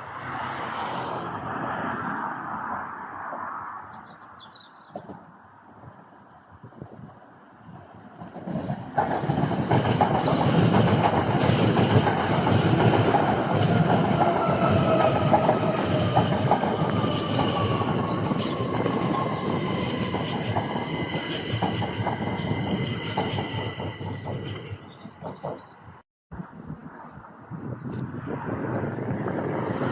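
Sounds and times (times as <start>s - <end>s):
train rumbling: 6.8s - 26.0s
wheels clicking over rail joints: 8.0s - 26.0s.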